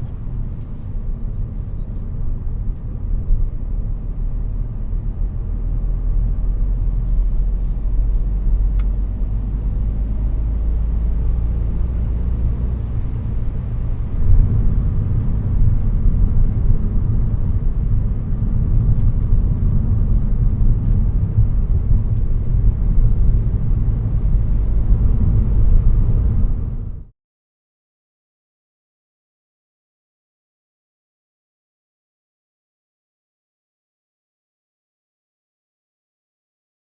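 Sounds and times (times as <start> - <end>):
diesel car engine rumble: 0.0 - 27.1.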